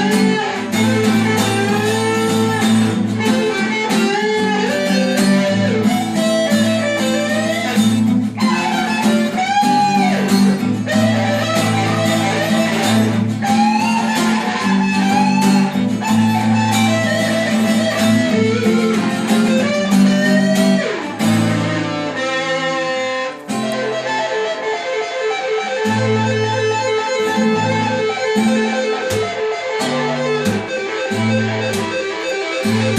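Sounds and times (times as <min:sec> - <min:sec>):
lead guitar with bent notes: 0:00.0 - 0:32.9.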